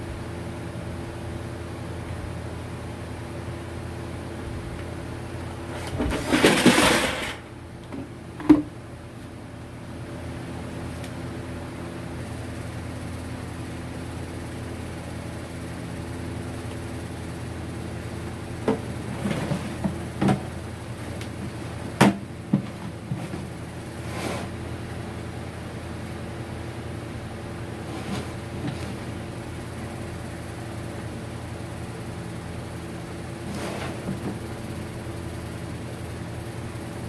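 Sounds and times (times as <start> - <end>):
steady low hum: 0.0 - 37.0
rustling and scraping: 5.7 - 7.4, 18.7 - 21.8, 22.5 - 24.6, 27.8 - 29.1, 33.4 - 34.4.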